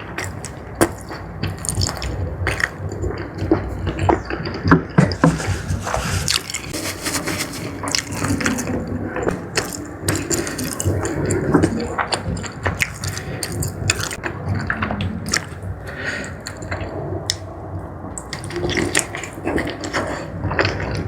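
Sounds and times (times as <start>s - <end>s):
wet chewing and lip-smacking: 0.0s - 4.6s, 9.3s - 17.4s.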